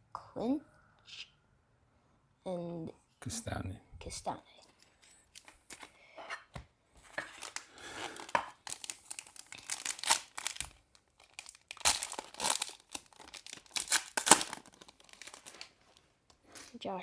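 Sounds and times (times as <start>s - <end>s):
foil wrapper tearing and crinkling: 7.1s - 16.7s.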